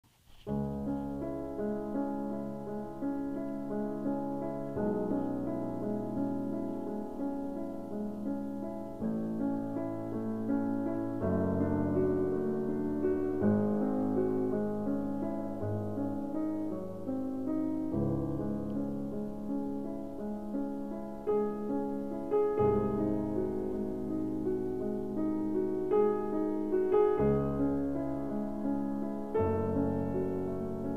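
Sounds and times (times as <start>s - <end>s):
piano chords: 0.4s - 30.9s.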